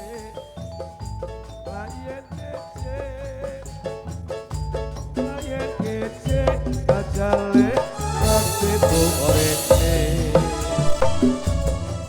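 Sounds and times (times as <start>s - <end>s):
drum and bass pattern: 6.5s - 12.0s
bright high wash: 7.9s - 12.0s
keyboard-like melody: 7.9s - 12.0s.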